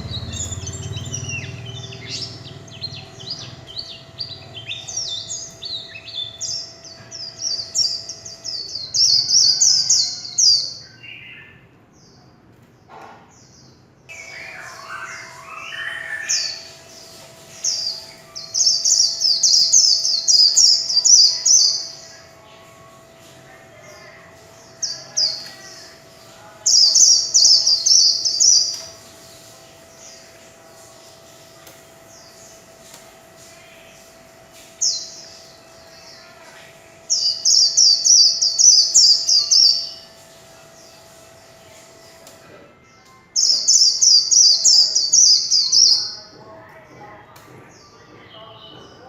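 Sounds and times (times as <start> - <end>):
bird singing high notes: 14.1 - 22.8.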